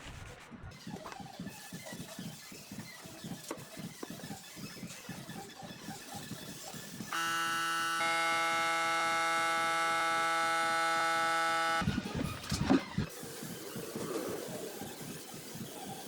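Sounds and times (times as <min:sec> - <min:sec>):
electric hum with held tones: 0:07.1 - 0:12.0.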